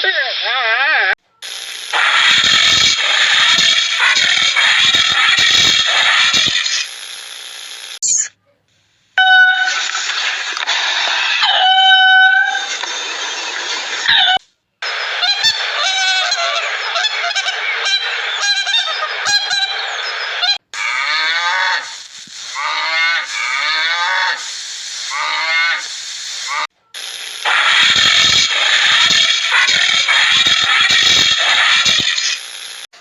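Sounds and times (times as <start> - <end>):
animal calls: 15.0 - 26.7.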